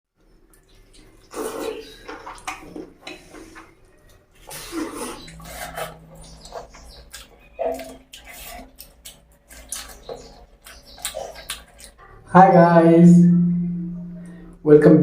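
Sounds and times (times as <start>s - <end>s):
slurping and chewing: 0.5s - 12.3s.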